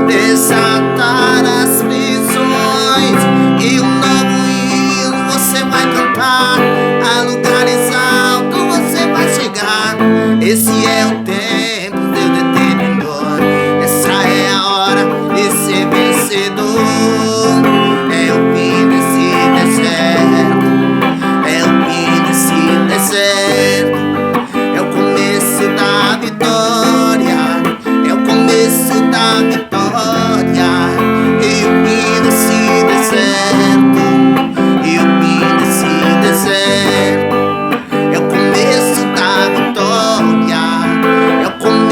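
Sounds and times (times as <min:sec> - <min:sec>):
strummed acoustic guitar: 0:00.0 - 0:41.9.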